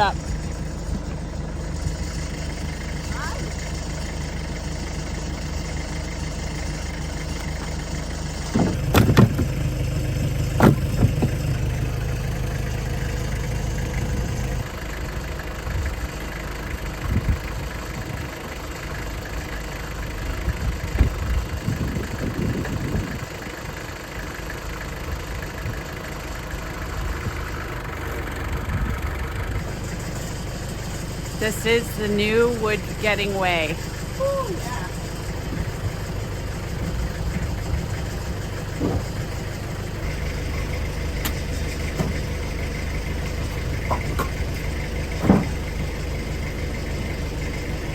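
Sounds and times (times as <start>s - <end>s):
tractor engine idling: 0.0s - 47.9s
logs knocking into metal bucket: 8.5s - 9.6s, 43.5s - 44.6s, 45.2s - 45.6s.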